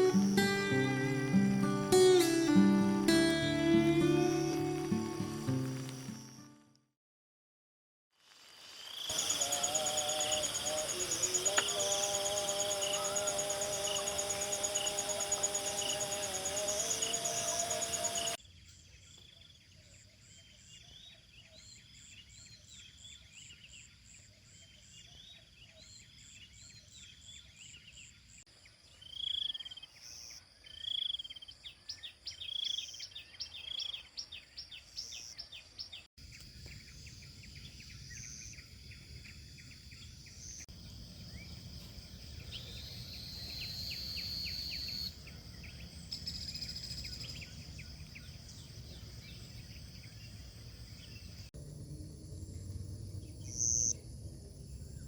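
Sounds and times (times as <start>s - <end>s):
high insect buzz: 0.0s - 6.5s, 8.3s - 18.4s
background music: 0.0s - 6.6s
loud bird calls: 9.1s - 18.4s.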